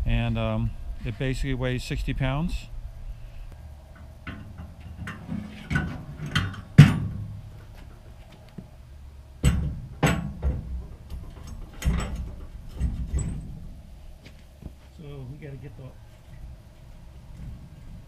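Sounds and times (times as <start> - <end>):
metal rack knocking and clanking: 4.3 - 7.3, 9.4 - 13.7.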